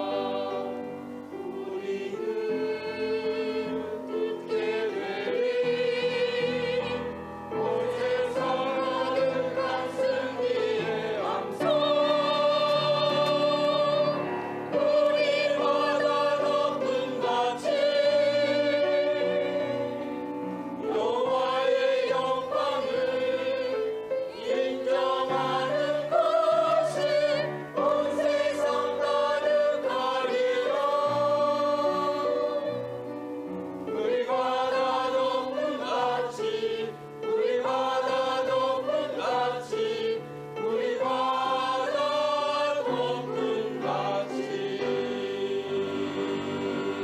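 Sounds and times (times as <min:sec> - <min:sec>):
church choir singing: 0:00.0 - 0:47.0.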